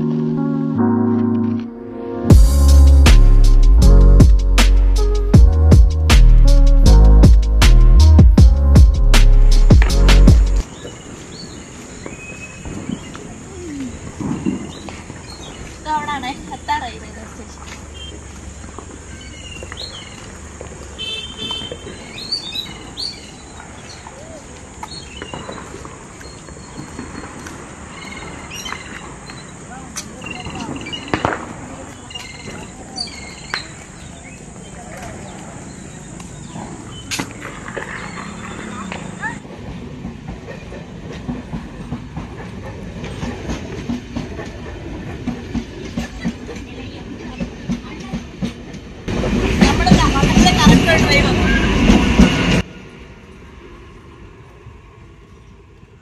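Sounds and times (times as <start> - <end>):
outdoor background noise: 0.0 - 56.0
birds chirping: 9.7 - 39.4
train coaches rumbling: 9.7 - 56.0
wheels clacking over rail joints: 10.6 - 52.7.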